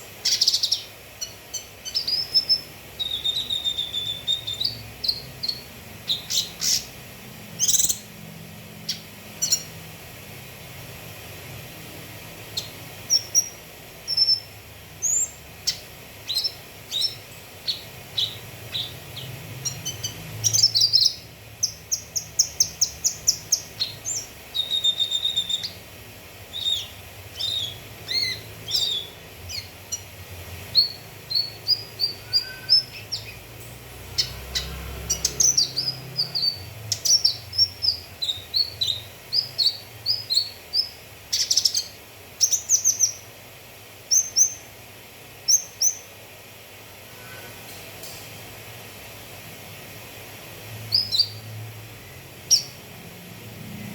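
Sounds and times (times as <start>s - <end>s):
bird singing chirps and whistles: 0.0s - 6.9s, 7.6s - 8.1s, 12.6s - 25.8s, 26.5s - 30.0s, 30.8s - 33.4s, 34.2s - 43.2s, 44.1s - 44.7s, 45.5s - 46.1s, 50.9s - 51.5s, 52.5s - 52.8s.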